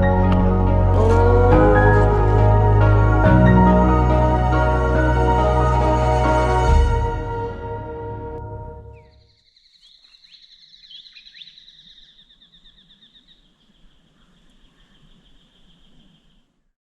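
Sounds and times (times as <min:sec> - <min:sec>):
background music: 0:00.0 - 0:09.1
birdsong trilling: 0:08.9 - 0:16.7.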